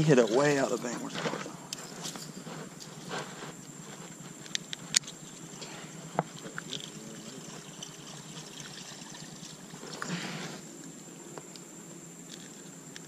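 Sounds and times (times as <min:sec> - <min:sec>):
water splashing against boat: 0:00.0 - 0:01.6.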